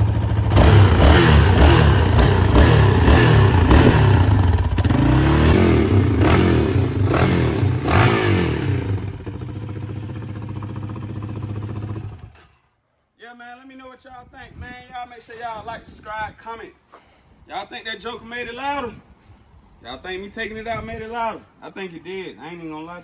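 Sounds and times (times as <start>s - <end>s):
engine revving and idling: 0.0s - 12.4s.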